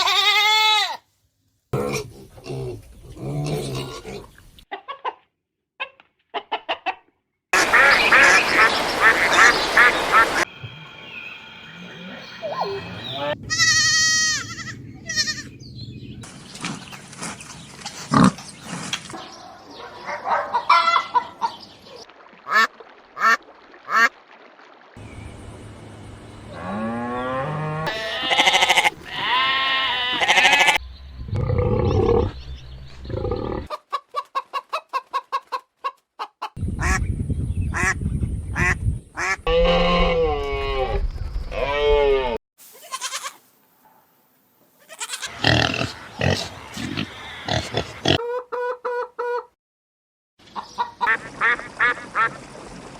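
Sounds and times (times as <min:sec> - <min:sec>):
ducks quacking: 0:07.6 - 0:10.5, 0:22.5 - 0:24.1, 0:33.5 - 0:37.0, 0:38.6 - 0:40.1, 0:50.6 - 0:52.4
geese honking: 0:07.6 - 0:10.5.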